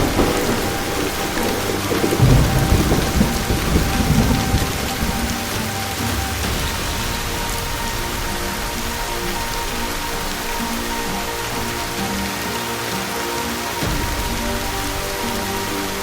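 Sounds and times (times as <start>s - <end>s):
rumbling thunder: 0.0s - 12.2s
faint background music: 0.0s - 16.0s
heavy rain: 0.0s - 16.0s.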